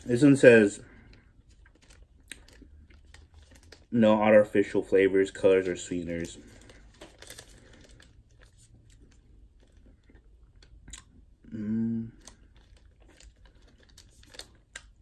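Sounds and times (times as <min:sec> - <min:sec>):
wet chewing sounds: 0:12.2 - 0:15.0.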